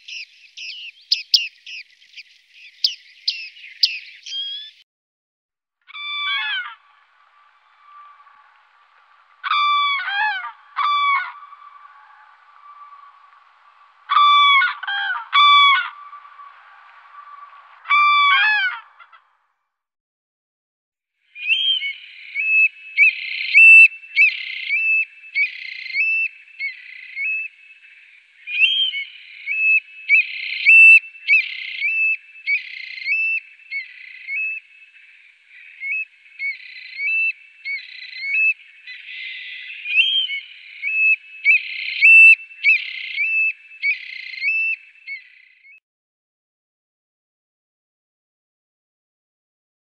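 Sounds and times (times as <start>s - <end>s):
songbird singing: 0.0s - 4.8s, 21.4s - 45.8s.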